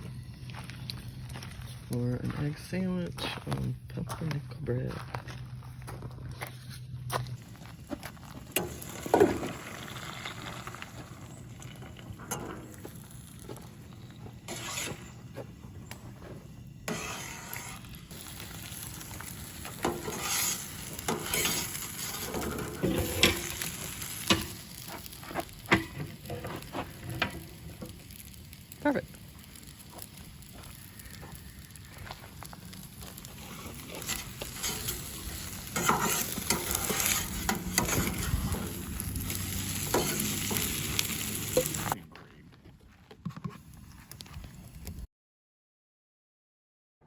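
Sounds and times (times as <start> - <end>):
eggs sizzling in a pan: 7.4 - 15.9, 16.8 - 42.0
utensil scraping a pan: 14.5 - 15.5, 16.9 - 18.0, 19.6 - 24.9, 33.4 - 42.0.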